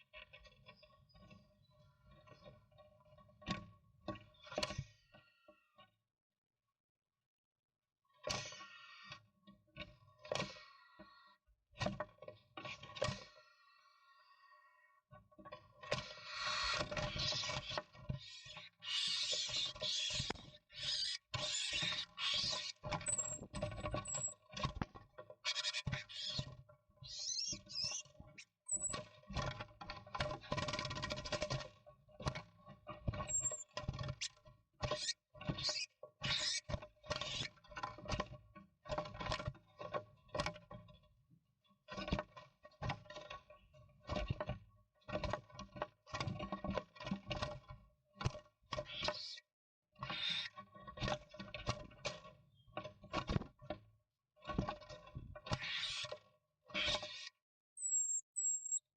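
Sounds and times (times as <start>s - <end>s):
short high squeaks: 18.9s - 24.4s, 27.1s - 28.0s, 28.7s - 29.0s, 33.3s - 33.7s, 56.8s - 58.9s.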